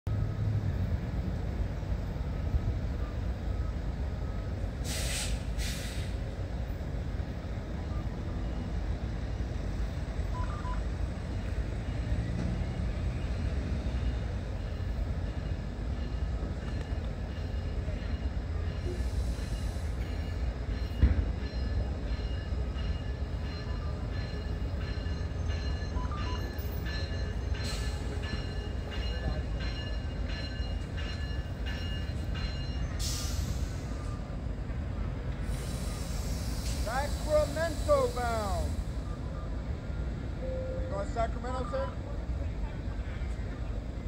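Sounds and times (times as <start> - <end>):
train rumbling: 0.1 - 44.0
short hisses: 4.8 - 6.2.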